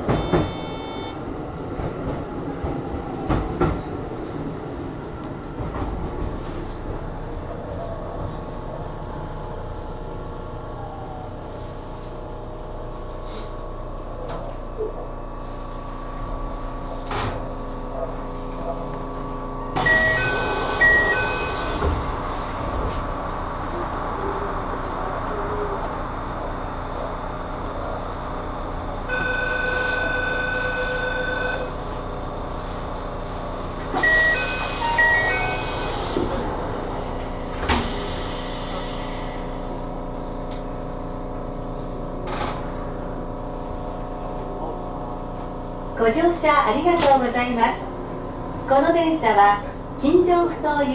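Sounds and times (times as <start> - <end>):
two-tone door chime: 0.0 - 1.2, 19.8 - 22.0, 29.1 - 31.7, 34.0 - 36.1
train humming: 0.0 - 14.3, 15.4 - 42.0, 42.7 - 50.9
train door hiss: 33.8 - 40.3.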